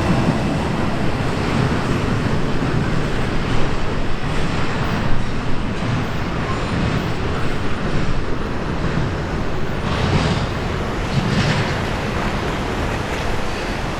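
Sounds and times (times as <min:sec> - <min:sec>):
train cars rolling on rails: 0:00.0 - 0:13.9.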